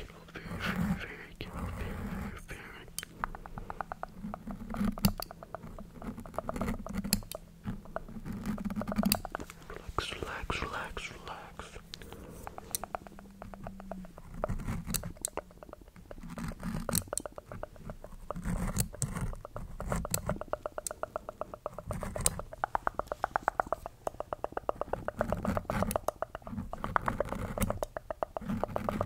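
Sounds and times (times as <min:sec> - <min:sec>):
wet mouth clicks and smacks: 0:02.9 - 0:04.2, 0:11.8 - 0:14.2, 0:19.4 - 0:28.5.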